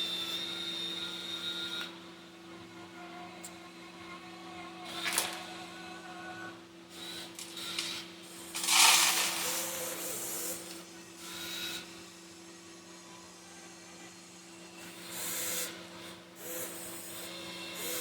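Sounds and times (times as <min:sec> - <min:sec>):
small electric motors whining: 0:00.0 - 0:02.0, 0:02.7 - 0:18.0
steady hum: 0:02.2 - 0:17.4
rock spilling: 0:08.6 - 0:09.8.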